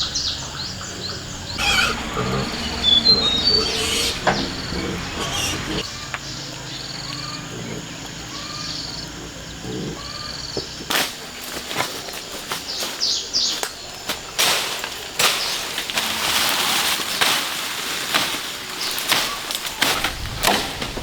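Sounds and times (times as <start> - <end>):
birds calling: 0.0 - 21.0
sharp cracks and knocks: 17.2 - 21.0.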